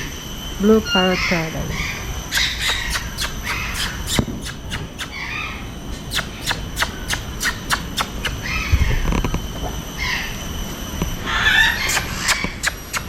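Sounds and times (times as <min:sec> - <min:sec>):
parrots chirping: 0:00.0 - 0:09.2, 0:10.0 - 0:13.0
parrots squawking: 0:00.8 - 0:09.1, 0:11.2 - 0:13.0.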